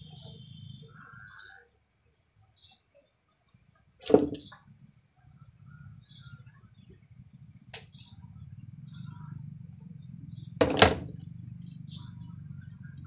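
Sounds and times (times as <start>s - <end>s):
small birds chirping: 0.0s - 13.0s
steady low hum: 4.2s - 13.0s.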